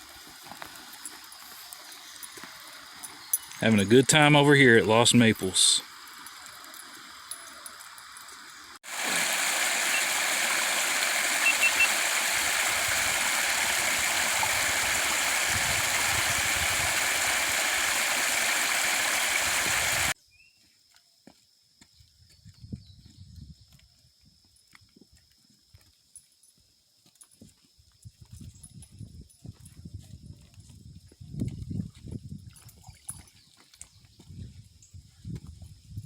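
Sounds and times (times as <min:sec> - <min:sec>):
stream water rushing: 0:04.8 - 0:20.2.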